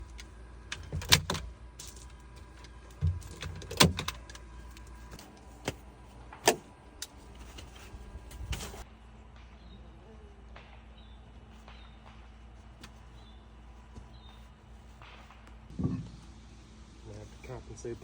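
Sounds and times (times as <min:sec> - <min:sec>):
hard objects knocking: 0:15.7 - 0:16.2.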